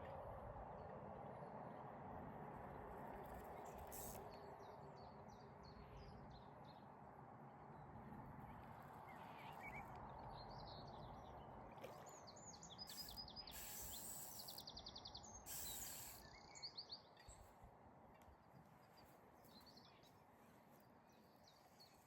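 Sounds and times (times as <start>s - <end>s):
short bursts of hiss: 3.9s - 4.2s, 12.9s - 14.7s, 15.5s - 16.4s.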